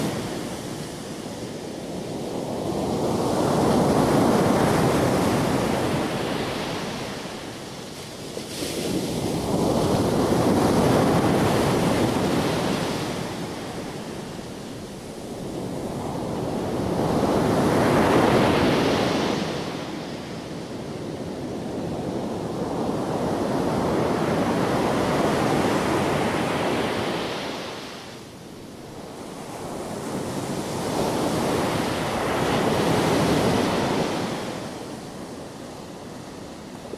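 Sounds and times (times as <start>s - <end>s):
sea waves breaking on beach: 21.4s - 36.9s.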